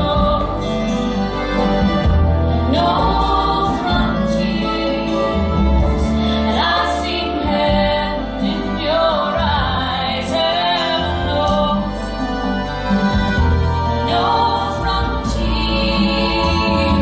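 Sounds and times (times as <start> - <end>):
woman singing: 0.0 - 1.0, 2.6 - 12.2, 14.0 - 17.0
sustained backing and bass: 0.0 - 17.0.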